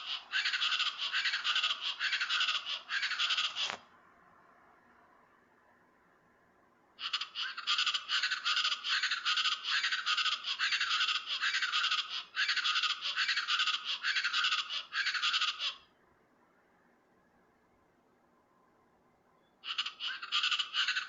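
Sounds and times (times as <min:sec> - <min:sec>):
bird calling harsh repeated notes: 0:00.0 - 0:03.8, 0:07.0 - 0:15.9, 0:19.5 - 0:21.0.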